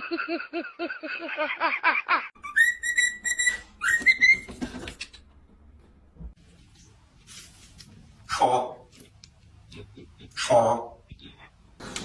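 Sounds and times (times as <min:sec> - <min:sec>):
whistled notes: 0:02.4 - 0:04.5.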